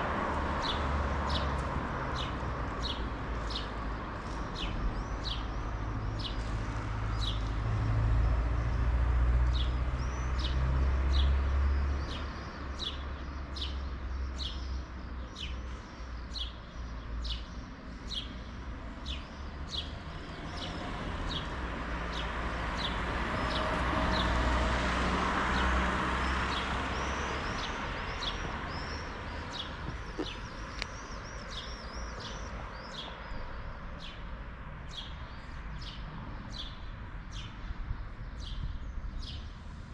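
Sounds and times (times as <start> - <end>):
bird chirping: 26.2 - 37.7.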